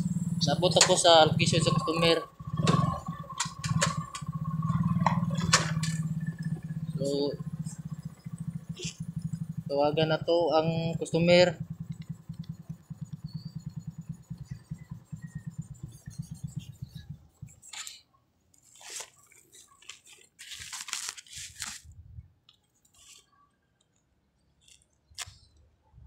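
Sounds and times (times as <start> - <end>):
motorcycle engine idling: 0.0 - 17.8
phone handling rustling and scraping: 18.6 - 21.9.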